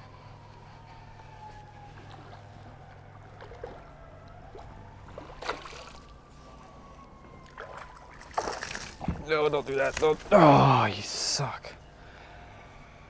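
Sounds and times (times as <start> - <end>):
faint wavering whine: 0.0 - 13.0
light water sounds: 0.4 - 11.4.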